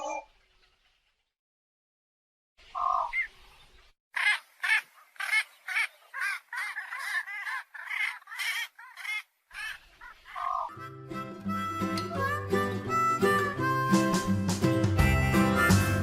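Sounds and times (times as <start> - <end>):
bird calling: 2.7 - 14.1
short harsh bird calls: 4.2 - 10.9.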